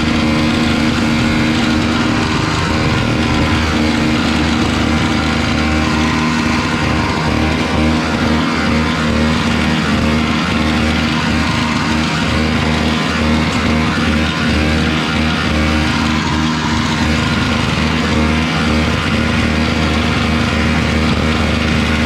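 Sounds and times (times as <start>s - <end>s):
snowblower engine running: 0.0s - 22.0s.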